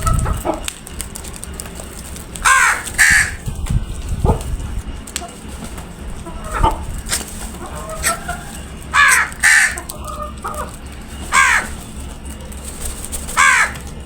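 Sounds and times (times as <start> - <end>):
crows cawing: 2.4 - 3.6, 5.2 - 14.0.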